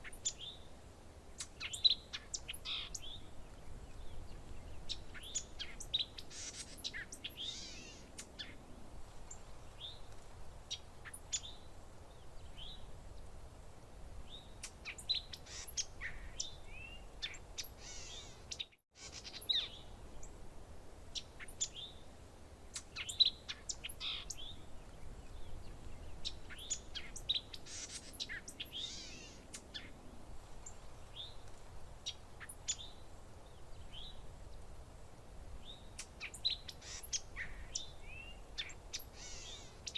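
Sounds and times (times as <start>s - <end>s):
songbirds chirping and calling: 0.0s - 13.4s, 14.2s - 20.4s, 21.1s - 34.8s, 35.5s - 39.9s
faint steady background hiss: 0.0s - 39.9s.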